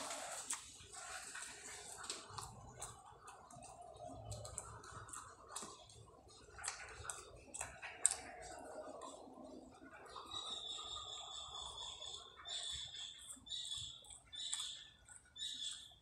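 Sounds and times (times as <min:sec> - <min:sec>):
wet chewing clicks and smacks: 0:00.0 - 0:16.0.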